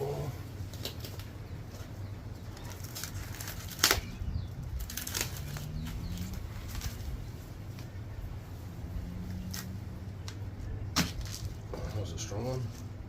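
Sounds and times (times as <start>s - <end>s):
corn cob snapping: 2.6s - 7.0s.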